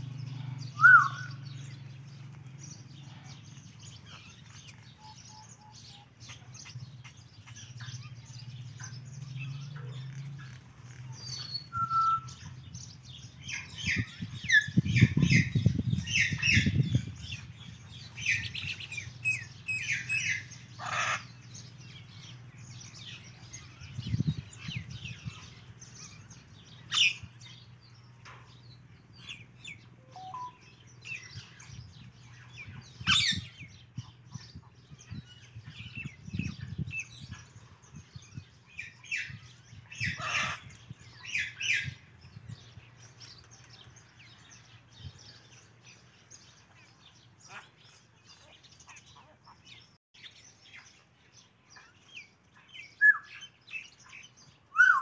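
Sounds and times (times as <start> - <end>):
sharp loud bird calls: 0.0 - 51.0, 51.7 - 55.0
short high bird chirps: 11.2 - 12.5, 30.1 - 30.6.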